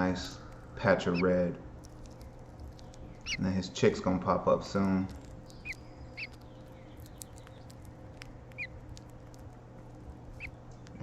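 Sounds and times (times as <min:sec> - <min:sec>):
faint steady hum: 0:00.0 - 0:11.0
bird chirps: 0:00.2 - 0:04.1, 0:05.0 - 0:09.2, 0:10.2 - 0:11.0.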